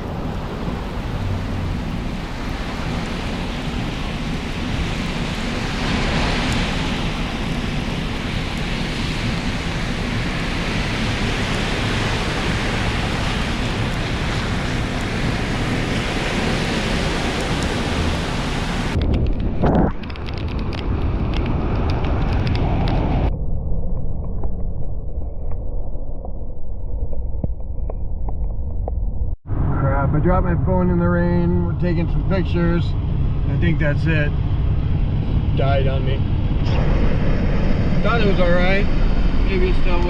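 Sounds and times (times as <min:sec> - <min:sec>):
heavy rain pouring: 0:00.0 - 0:21.4.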